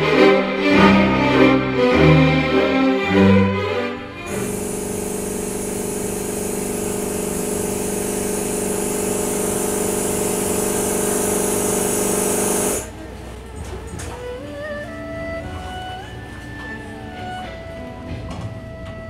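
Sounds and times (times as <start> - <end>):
high hiss: 4.2 - 13.0
train carriage running hum: 4.2 - 19.0.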